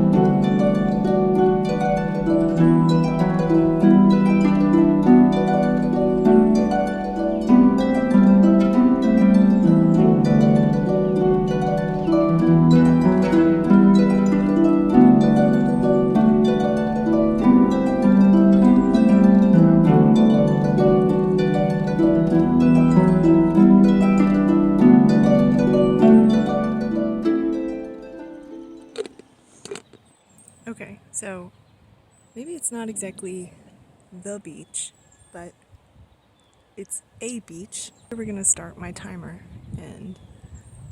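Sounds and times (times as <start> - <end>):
solo harp music: 0.0 - 29.6.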